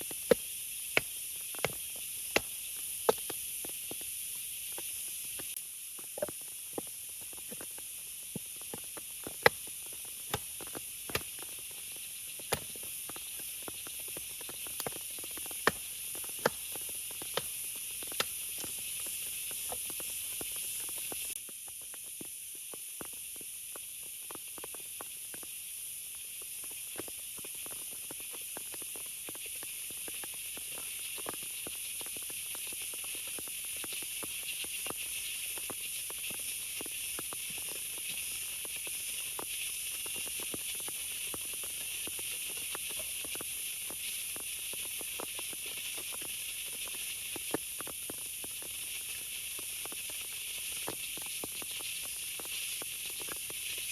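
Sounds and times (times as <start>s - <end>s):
rain hissing: 0.0s - 21.4s.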